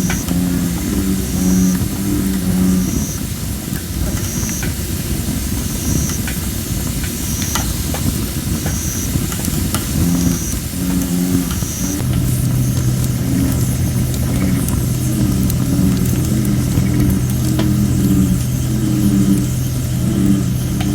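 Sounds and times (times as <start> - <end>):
bullfrogs calling: 0.0 - 3.4, 8.6 - 20.9
campfire hissing: 0.0 - 20.9
fire crackles: 0.0 - 20.9.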